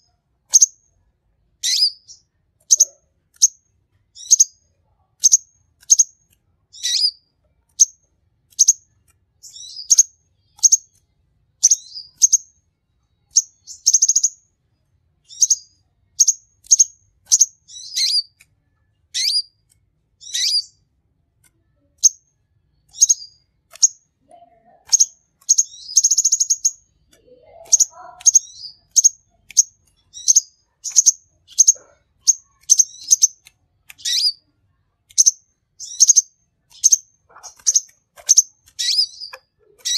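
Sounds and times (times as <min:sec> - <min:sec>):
bird chirping: 0:00.0 - 0:01.0, 0:01.6 - 0:14.6, 0:15.2 - 0:20.9, 0:21.5 - 0:39.9
buzzy bird trills: 0:01.6 - 0:03.6, 0:06.7 - 0:07.2, 0:15.3 - 0:18.4, 0:19.1 - 0:19.6, 0:20.2 - 0:20.8, 0:22.8 - 0:34.4, 0:35.2 - 0:39.9.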